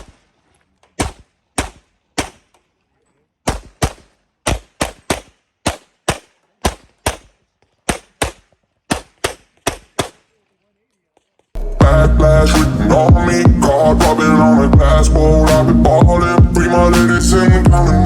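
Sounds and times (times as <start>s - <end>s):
pistol shots: 0.9s - 2.6s, 3.4s - 10.4s.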